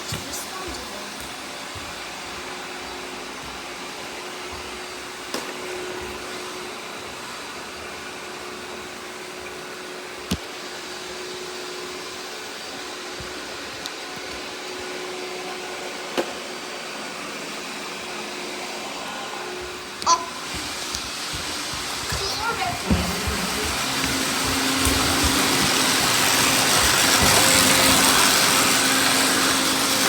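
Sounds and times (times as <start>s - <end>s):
robot vacuum cleaners whirring: 0.0s - 30.0s
sharp knocks: 20.4s - 28.0s.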